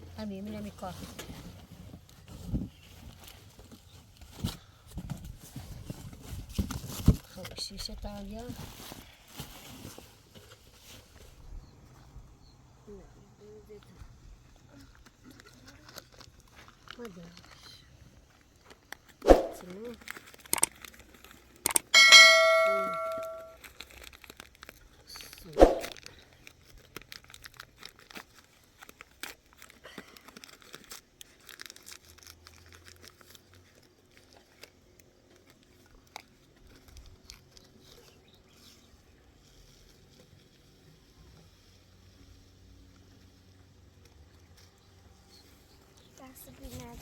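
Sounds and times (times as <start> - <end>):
light clattering of handled things: 18.2 - 24.7
metal object ringing: 21.9 - 23.6.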